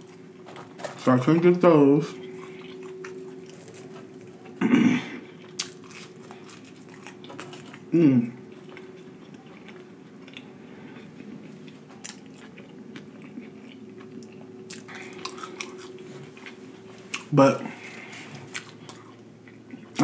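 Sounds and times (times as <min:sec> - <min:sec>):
faint steady hum: 0:00.0 - 0:20.0
soft chewing: 0:02.2 - 0:04.6, 0:05.2 - 0:20.0
man humming with enjoyment: 0:07.9 - 0:08.4.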